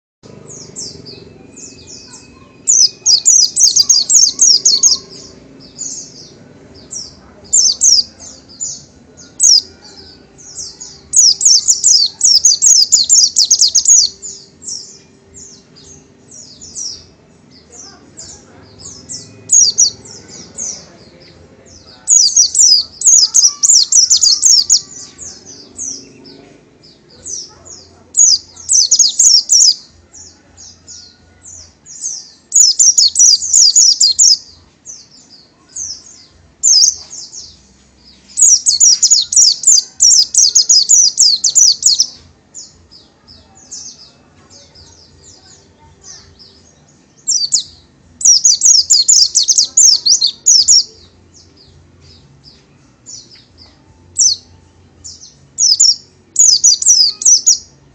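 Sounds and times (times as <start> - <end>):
bird twittering: 0.6 - 6.2, 10.7 - 14.5, 38.4 - 42.2, 47.2 - 50.9, 55.6 - 57.7.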